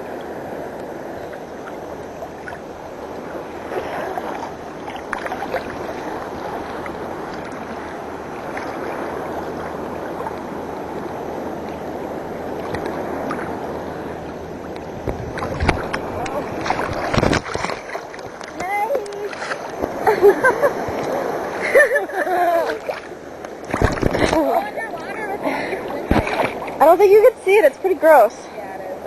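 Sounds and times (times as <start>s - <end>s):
seawater sloshing and lapping: 0.0s - 28.9s
small splashes: 3.6s - 10.5s, 14.6s - 27.3s.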